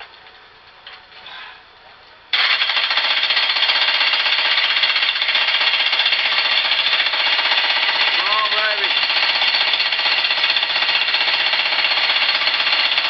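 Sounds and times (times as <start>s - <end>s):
jackhammer hammering: 2.3s - 13.0s.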